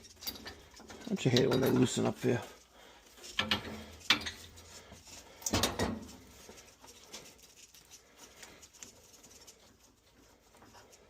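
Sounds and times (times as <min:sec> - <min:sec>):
faint ticks and scraping: 0:00.0 - 0:11.0
metal knocks and clicks: 0:03.3 - 0:04.4.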